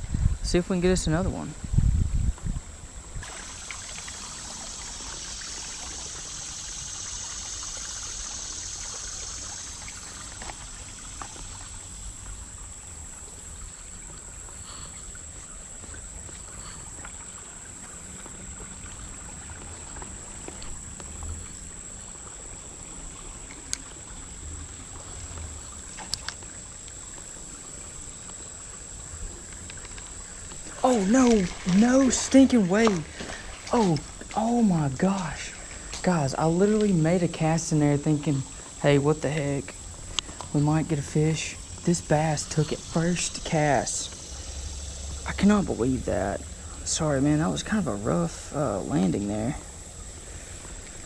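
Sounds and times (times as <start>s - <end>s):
creek water flowing: 0.0s - 51.0s.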